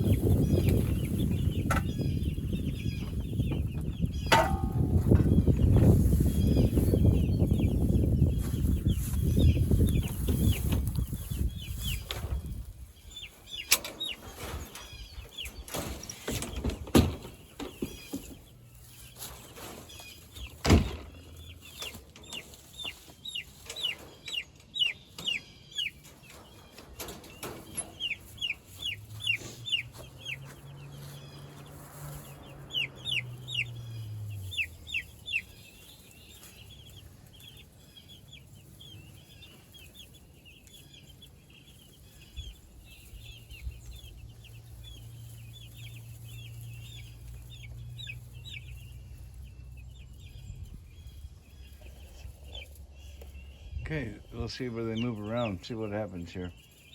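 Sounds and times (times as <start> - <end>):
chicks peeping: 0.0 - 56.9
sharp knocks: 4.2 - 5.3.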